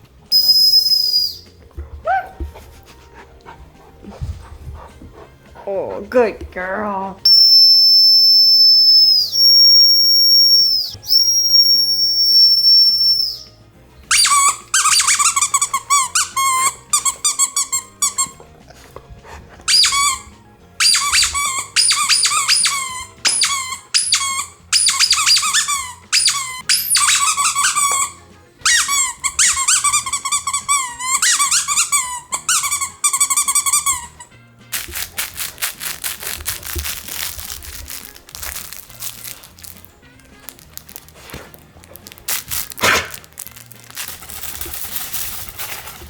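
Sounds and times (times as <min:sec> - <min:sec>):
faint background music: 0:00.0 - 0:46.0
high steady whistle tone: 0:00.3 - 0:01.6, 0:07.3 - 0:14.3
squeaky dog toy squeaking: 0:00.3 - 0:01.6, 0:07.2 - 0:18.6, 0:19.7 - 0:45.8.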